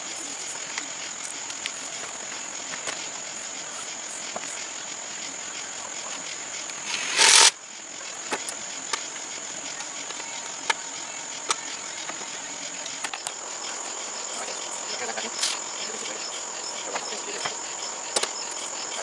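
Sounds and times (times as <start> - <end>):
high insect drone: 0.0 - 19.0
short hissing burst: 6.8 - 7.6.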